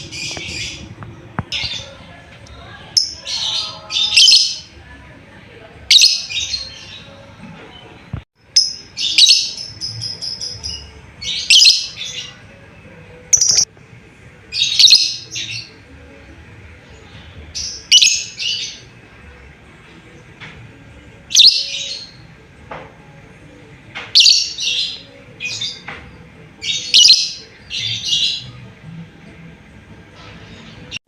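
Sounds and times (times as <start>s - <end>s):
lovebird chattering chirps: 13.3s - 13.7s.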